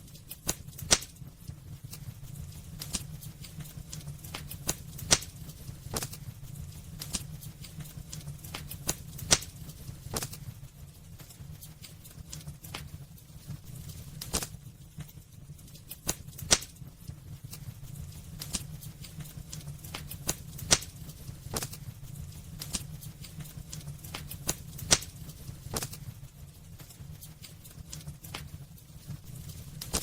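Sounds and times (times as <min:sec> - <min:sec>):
low rumble of flames: 0:00.0 - 0:30.0
wood crackling and popping: 0:00.0 - 0:30.0.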